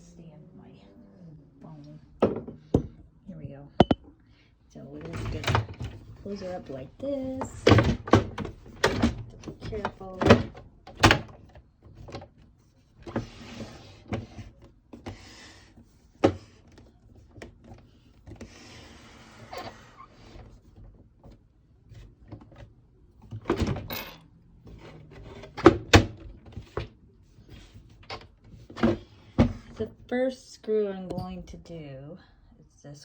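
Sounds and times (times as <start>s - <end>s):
plastic housing knocks and clicks: 3.8s - 4.0s.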